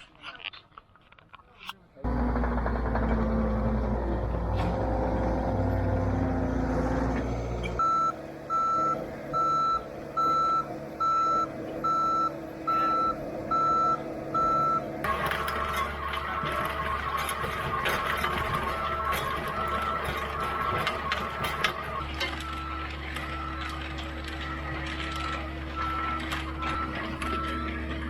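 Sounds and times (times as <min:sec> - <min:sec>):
vehicle engine rumbling: 0:00.0 - 0:28.0
reversing alarm beeping: 0:07.7 - 0:27.9.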